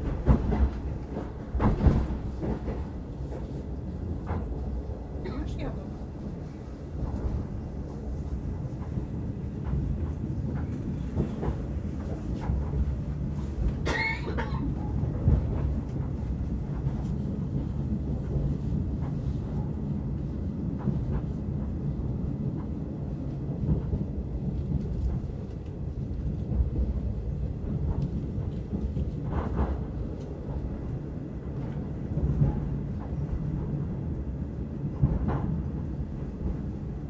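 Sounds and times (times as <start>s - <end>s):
train rumble inside carriage: 0.0s - 37.0s
cough-like sound: 13.8s - 14.8s.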